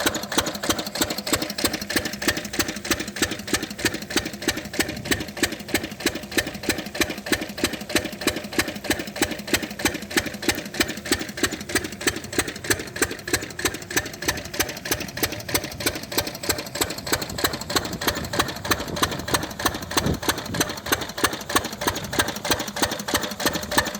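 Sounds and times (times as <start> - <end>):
diesel engine knocking steadily: 0.0 - 23.9.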